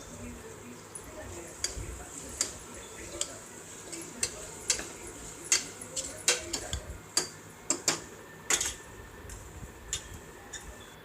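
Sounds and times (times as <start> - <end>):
spoon scraping metal pot: 1.0 - 8.8.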